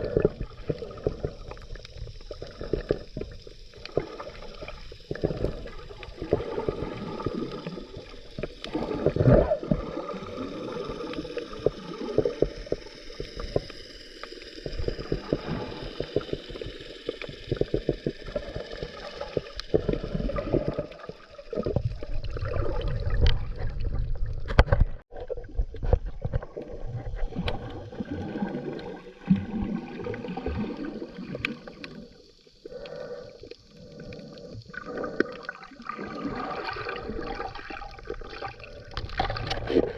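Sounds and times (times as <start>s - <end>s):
bubbles gurgling: 0.0s - 39.9s
low rumbling water noise: 0.0s - 39.9s
diver breathing through regulator: 31.7s - 35.6s.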